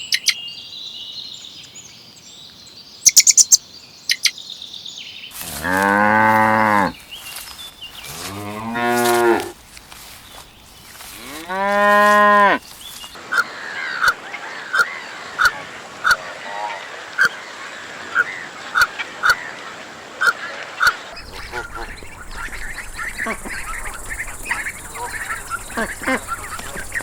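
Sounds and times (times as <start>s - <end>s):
short calls with sharp clicks: 3.1s - 4.3s
cow mooing: 5.4s - 7.0s, 8.0s - 9.6s, 11.0s - 12.7s.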